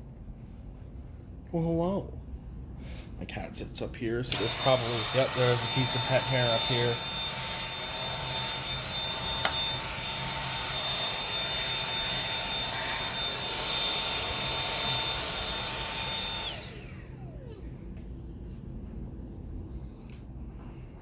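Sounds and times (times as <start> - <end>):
vacuum cleaner whine: 4.2 - 19.2.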